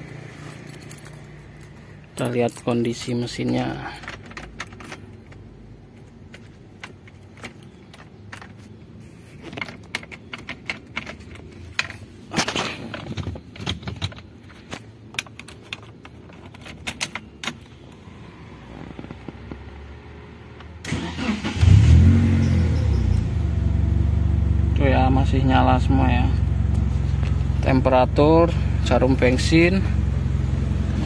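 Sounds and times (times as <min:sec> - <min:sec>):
ignition key rattles and clicks: 0:00.6 - 0:18.0
car engine idling: 0:17.6 - 0:31.0.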